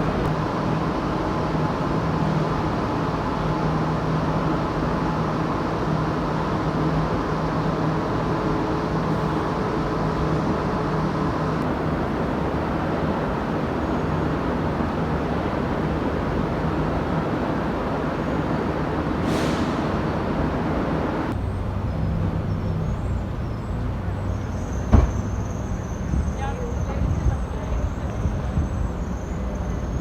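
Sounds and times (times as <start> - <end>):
train rumbling: 0.0 - 30.0
brief hiss: 19.2 - 20.1
thump: 24.9 - 25.3.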